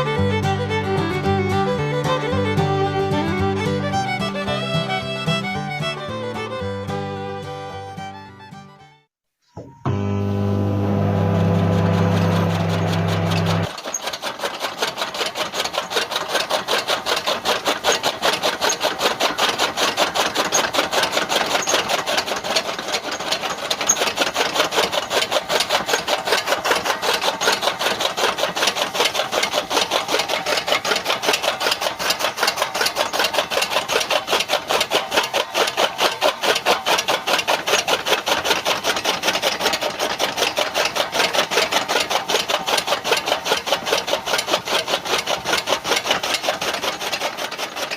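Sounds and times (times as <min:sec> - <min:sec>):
rapid rasping strokes: 0:10.7 - 0:47.9.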